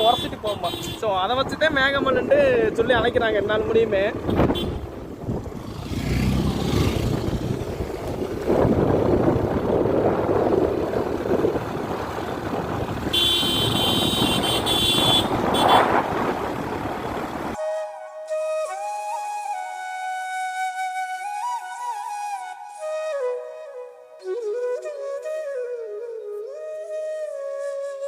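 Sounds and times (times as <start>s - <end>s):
wind buffeting microphone: 1.2s - 17.6s
motorbike engine: 3.6s - 17.6s.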